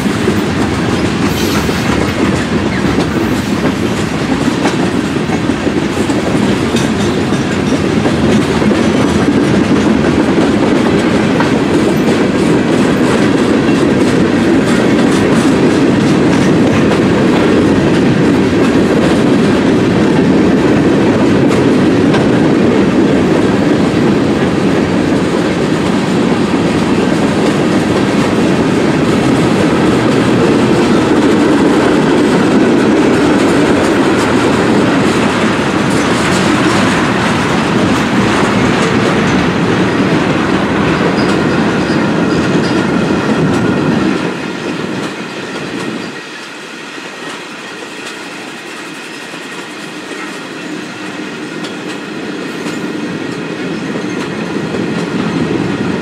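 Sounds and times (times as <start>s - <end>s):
wheels clicking over rail joints: 0.0s - 23.2s
freight train rolling past: 0.0s - 56.0s.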